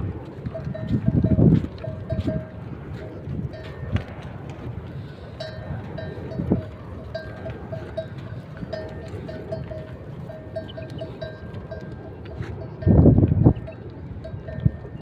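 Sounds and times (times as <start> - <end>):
cow bells clanking: 0.4 - 15.0.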